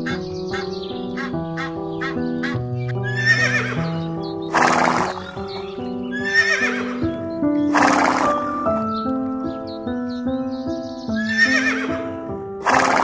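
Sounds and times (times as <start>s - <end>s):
background music: 0.0s - 13.0s
horse whinnying: 3.0s - 3.9s, 4.5s - 5.4s, 6.1s - 7.0s, 7.7s - 8.6s, 11.2s - 12.0s.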